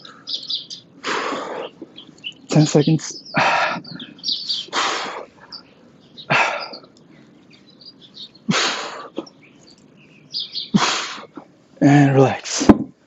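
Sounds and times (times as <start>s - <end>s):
faint bird chirps: 0.0s - 11.5s
forceful breaths through mouth: 1.0s - 1.9s, 3.4s - 7.3s.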